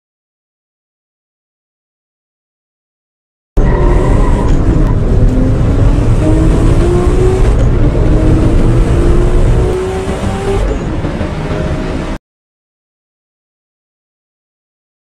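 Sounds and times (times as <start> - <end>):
car engine accelerating hard: 3.6 - 12.2.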